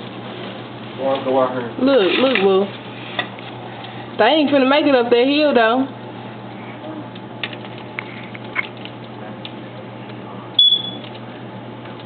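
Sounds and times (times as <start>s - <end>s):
steady low hum: 0.0s - 12.0s
sharp click with high tone: 10.6s - 11.1s.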